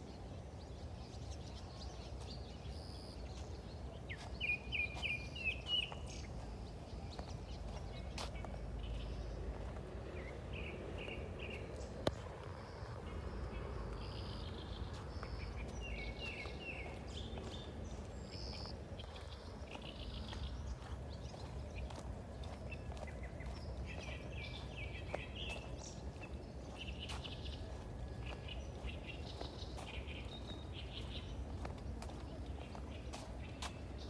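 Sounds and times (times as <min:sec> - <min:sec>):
small birds chirping: 0:00.0 - 0:34.0
steady low rumble: 0:00.0 - 0:34.0.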